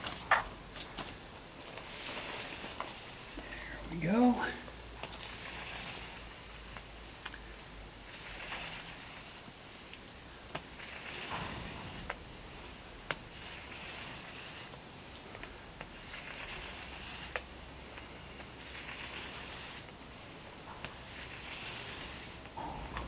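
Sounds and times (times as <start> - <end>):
foam roller rolling varnish: 0.0 - 7.1, 7.9 - 23.0.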